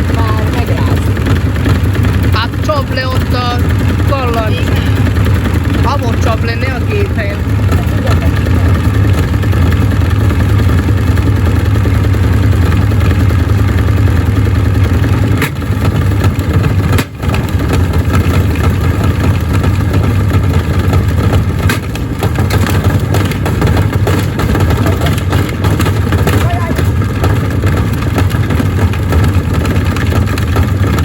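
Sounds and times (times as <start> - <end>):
washing machine rumbling: 0.0 - 31.0
bricks knocking in drum: 15.3 - 31.0.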